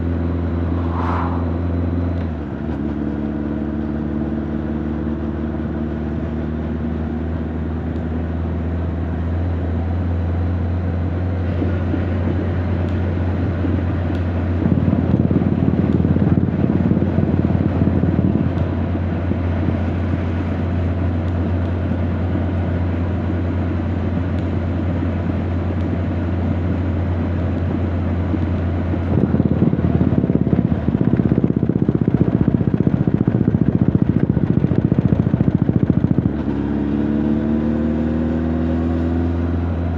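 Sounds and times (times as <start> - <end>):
motorcycle engine running: 9.5 - 39.9.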